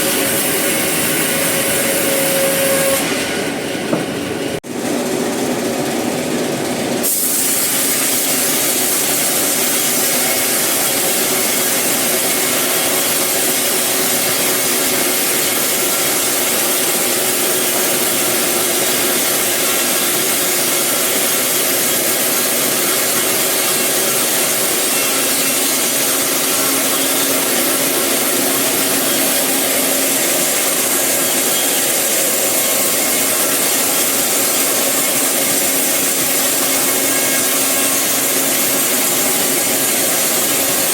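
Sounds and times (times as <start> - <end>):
saw cutting through wood: 0.0 - 4.6, 7.1 - 40.9.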